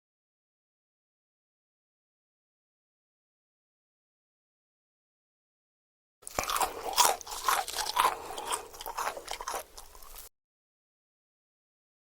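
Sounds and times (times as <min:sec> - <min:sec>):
crunching and chewing crisp food: 0:06.2 - 0:10.3.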